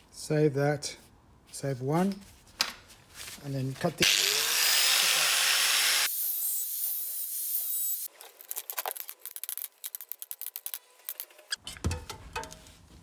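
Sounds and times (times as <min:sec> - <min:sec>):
power tool hissing: 0:04.0 - 0:08.1.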